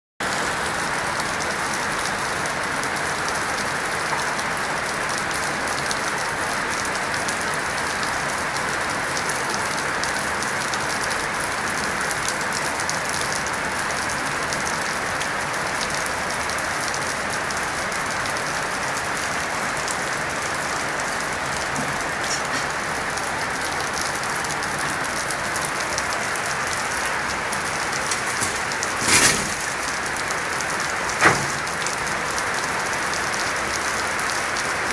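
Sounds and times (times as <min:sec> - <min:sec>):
steady rain hissing: 0:00.2 - 0:34.9
raindrops ticking: 0:14.2 - 0:34.9.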